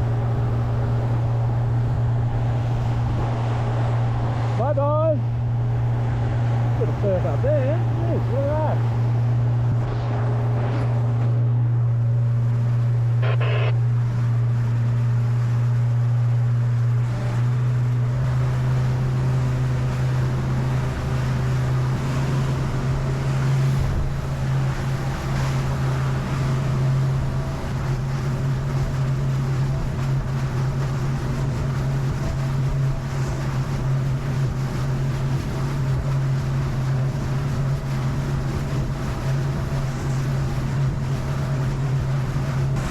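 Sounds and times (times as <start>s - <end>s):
wind on microphone: 0.0s - 4.6s, 19.7s - 42.9s
outboard motor humming: 0.0s - 42.9s
water rushing against hull: 0.0s - 42.9s.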